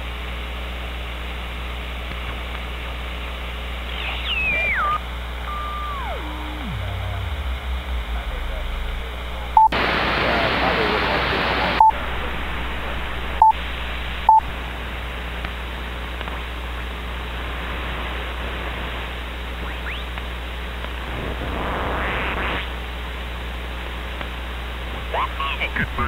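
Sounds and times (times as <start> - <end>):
faint distant radio signal: 3.8 - 15.4, 25.1 - 26.0
radio receiver hiss: 3.8 - 22.8
short high beeps: 4.0 - 6.6.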